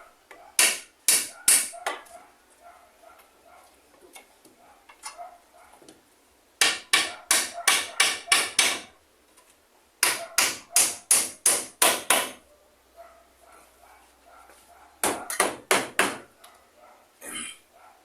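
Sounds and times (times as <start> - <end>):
hammer driving nails: 0.6 - 1.7, 6.6 - 8.9, 10.0 - 12.4, 15.0 - 16.3.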